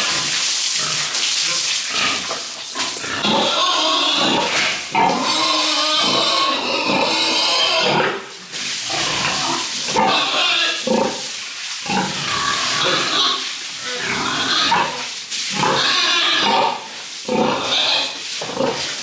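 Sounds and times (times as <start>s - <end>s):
pigs squealing: 2.9s - 8.2s, 8.9s - 11.3s, 11.9s - 15.0s, 15.6s - 18.8s.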